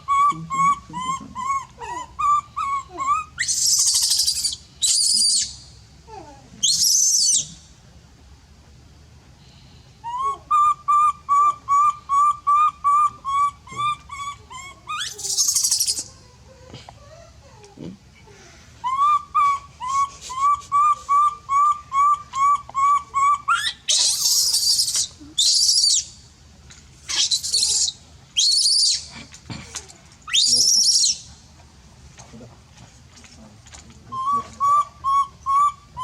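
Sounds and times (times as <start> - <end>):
baby monkey squealing: 0.0 - 5.6, 6.6 - 7.6, 10.1 - 16.2, 18.8 - 26.2, 27.1 - 29.2, 30.3 - 31.3, 34.1 - 36.0.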